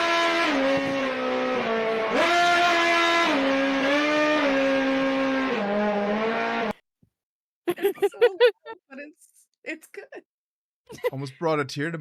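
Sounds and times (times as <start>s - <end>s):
race car engine revving a melody: 0.0s - 6.8s.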